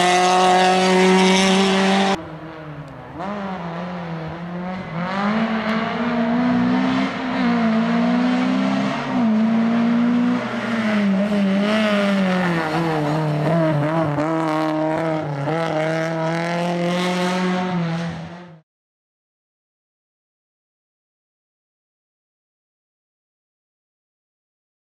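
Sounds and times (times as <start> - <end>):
rally car engine revving: 0.0 - 18.6.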